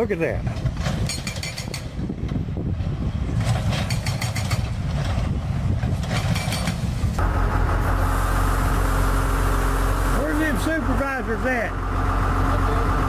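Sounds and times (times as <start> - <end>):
demolition machine engine: 0.2 - 13.0.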